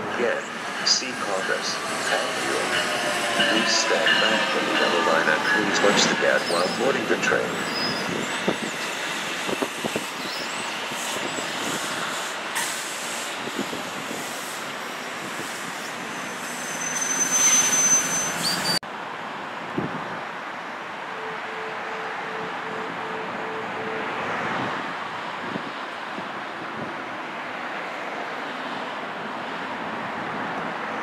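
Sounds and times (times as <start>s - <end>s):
passenger train hissing: 0.0s - 18.8s
train squeal: 0.0s - 18.8s
short beep: 21.2s - 24.2s.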